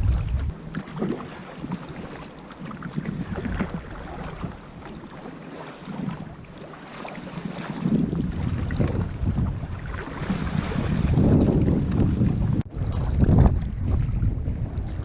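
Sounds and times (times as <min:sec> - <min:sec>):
wind rumbling on microphone: 0:00.0 - 0:00.7, 0:02.9 - 0:05.0, 0:07.4 - 0:15.0
water splashing around kayak: 0:00.0 - 0:15.0.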